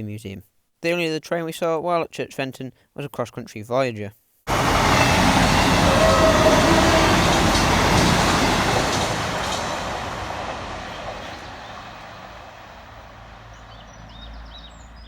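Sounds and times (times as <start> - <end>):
train passing at speed: 4.5 - 15.0.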